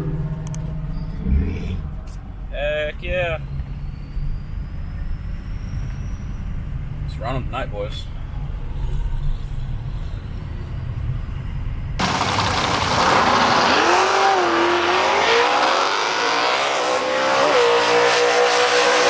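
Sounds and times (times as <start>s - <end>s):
low vehicle rumble: 0.0s - 7.2s, 8.1s - 15.2s
car engine at high revs: 12.0s - 19.0s.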